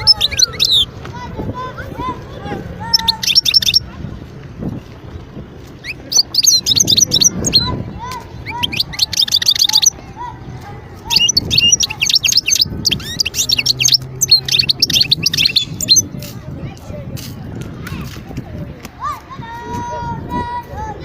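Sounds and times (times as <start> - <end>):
goldfinch twittering song: 0.0 - 0.9, 2.9 - 3.8, 5.8 - 7.8, 8.4 - 10.0, 11.1 - 16.1.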